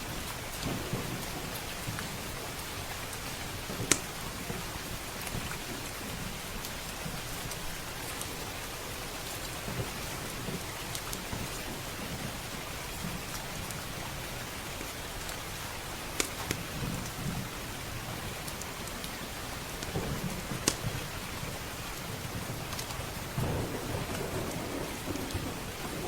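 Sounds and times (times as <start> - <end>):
heavy rain on windows and roof: 0.0 - 26.0
wood fire crackling: 0.0 - 26.0
thunder rumbling: 0.1 - 5.0, 19.9 - 26.0.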